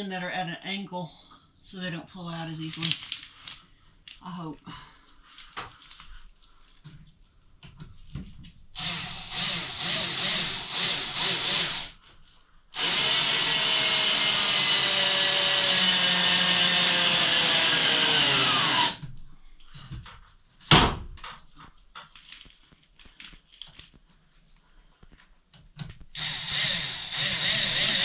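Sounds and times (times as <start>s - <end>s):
power drill driving screw into wood: 8.8s - 12.0s, 12.8s - 19.0s, 26.1s - 28.0s.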